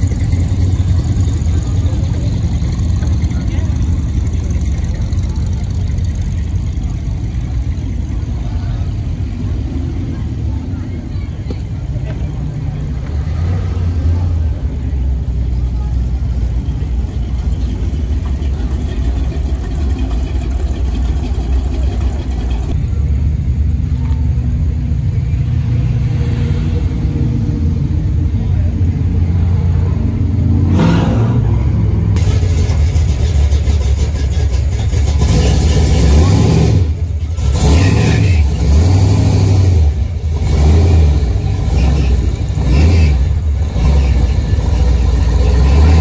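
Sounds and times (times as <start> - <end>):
cars cruising with engine rumble: 0.0 - 46.0
engine revving: 30.4 - 46.0.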